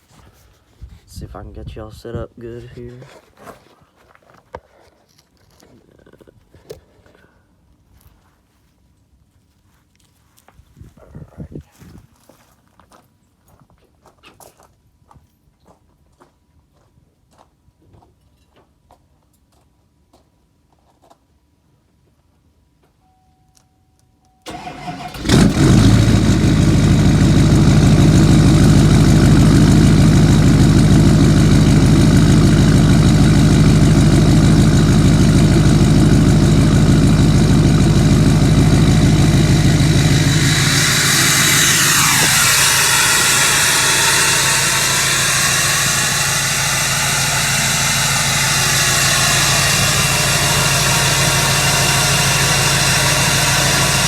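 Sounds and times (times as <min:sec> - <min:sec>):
diesel engine idling: 0:24.5 - 0:54.0
engine cranking: 0:24.5 - 0:54.0
whine falling in pitch: 0:36.9 - 0:54.0
hiss: 0:39.2 - 0:54.0.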